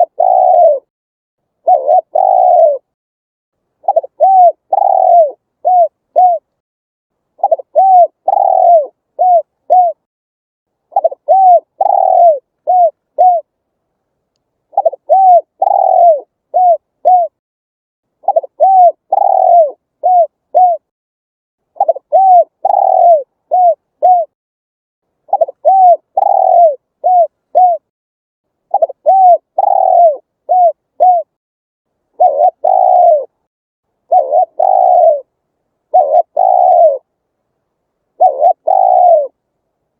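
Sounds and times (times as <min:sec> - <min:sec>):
dove cooing: 0:00.0 - 0:00.9, 0:01.6 - 0:03.0, 0:03.8 - 0:06.5, 0:07.4 - 0:10.1, 0:10.9 - 0:13.5, 0:14.7 - 0:17.4, 0:18.2 - 0:20.9, 0:21.8 - 0:24.4, 0:25.3 - 0:27.9, 0:28.7 - 0:31.3, 0:32.2 - 0:33.4, 0:34.1 - 0:35.3, 0:35.9 - 0:37.1, 0:38.2 - 0:39.4.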